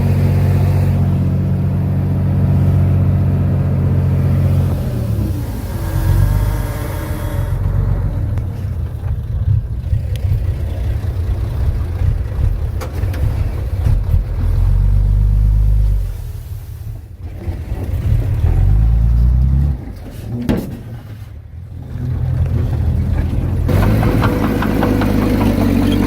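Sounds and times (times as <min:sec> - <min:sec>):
heavy machinery diesel engine running: 0:00.0 - 0:15.9, 0:21.5 - 0:26.0.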